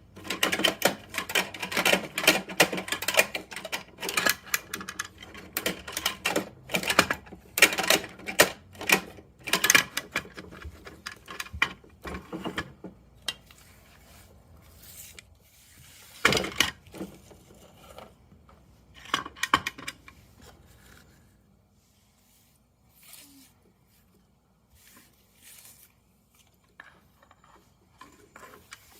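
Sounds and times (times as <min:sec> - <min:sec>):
toy truck plastic clicks and rattles: 0:00.1 - 0:13.4, 0:19.0 - 0:20.2, 0:26.7 - 0:28.9
plastic toy clatter: 0:00.2 - 0:12.7.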